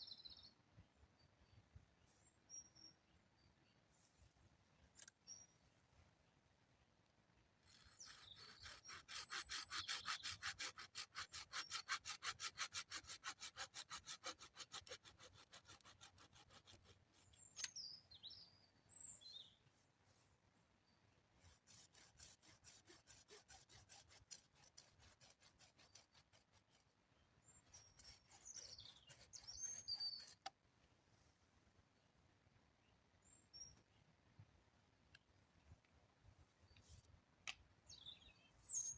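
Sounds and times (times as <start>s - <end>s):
hand saw cutting wood: 7.6s - 17.7s, 21.4s - 26.9s, 27.6s - 30.5s.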